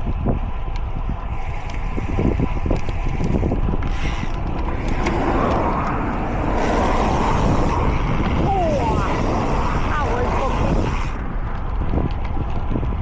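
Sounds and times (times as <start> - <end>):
bike rattles and clicks: 0.0 - 13.0
tyre and road noise: 0.0 - 13.0
wind rumbling on microphone: 0.0 - 13.0
loud hiss: 3.9 - 11.2.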